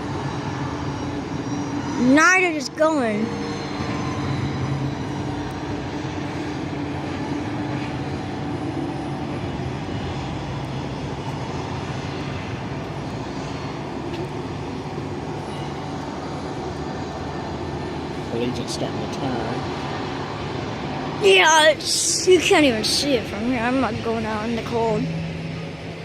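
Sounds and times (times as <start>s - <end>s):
thin high whine: 0.0s - 19.6s
distant jet engines roaring: 0.0s - 26.0s.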